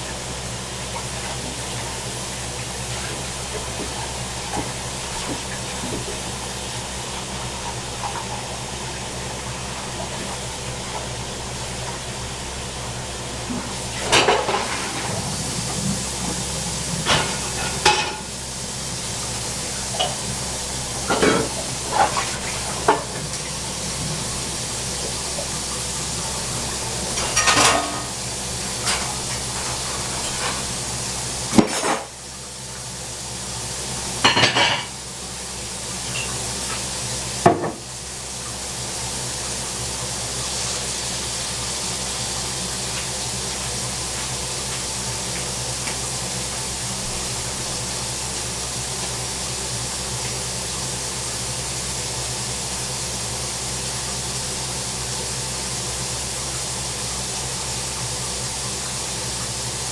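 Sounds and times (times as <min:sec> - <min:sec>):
dishes and utensils clinking: 0:27.1 - 0:28.2.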